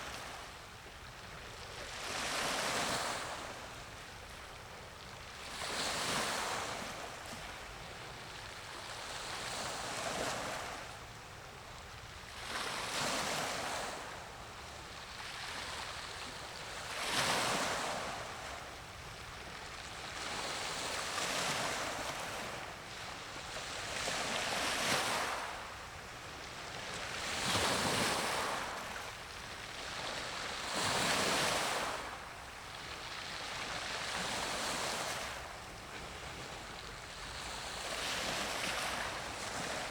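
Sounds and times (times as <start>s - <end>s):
small sea waves breaking: 15.0s - 39.9s.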